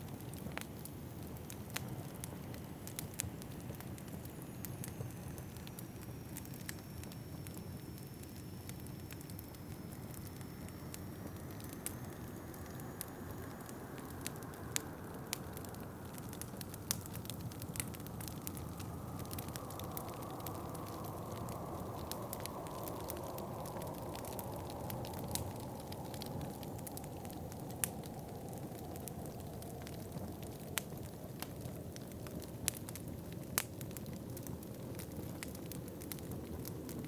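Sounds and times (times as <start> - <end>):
wood fire crackling and popping: 0.0 - 37.0
low rush of wind: 9.6 - 37.0
high whistle of wind: 18.5 - 30.4.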